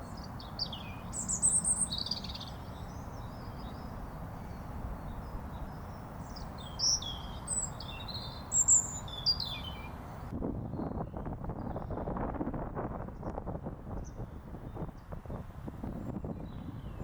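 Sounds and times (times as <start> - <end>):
low outdoor hiss: 0.0 - 10.3
songbirds chirping: 0.0 - 12.0
wind buffeting microphone: 0.0 - 17.0.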